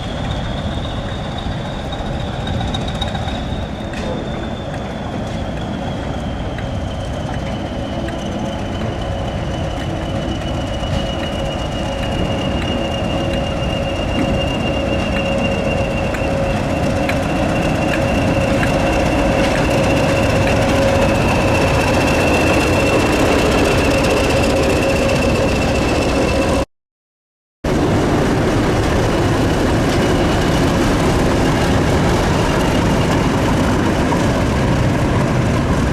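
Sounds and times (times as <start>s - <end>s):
diesel train rumbling: 0.0s - 26.7s, 27.6s - 35.9s.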